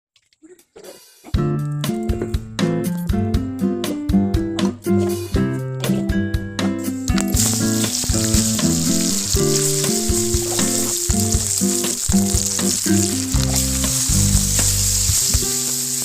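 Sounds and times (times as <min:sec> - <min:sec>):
background music: 0:01.0 - 0:16.0
food sizzling in hot oil: 0:06.8 - 0:16.0.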